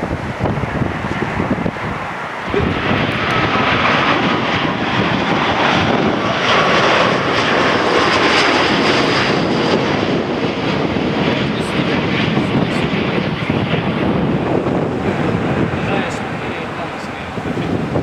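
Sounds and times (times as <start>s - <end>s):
jet engines passing close: 0.0s - 18.0s.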